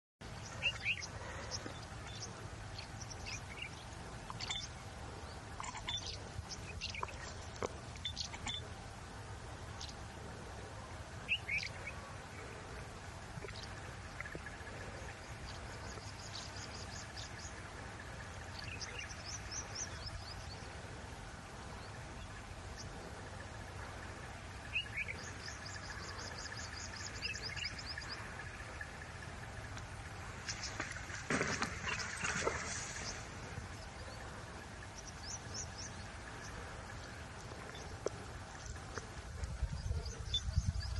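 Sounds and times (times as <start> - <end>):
steady low hum: 0.2 - 40.9.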